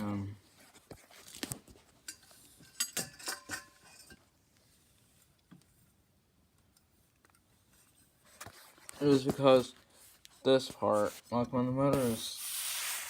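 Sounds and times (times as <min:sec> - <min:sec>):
light metallic clinks and knocks: 0:02.0 - 0:04.3.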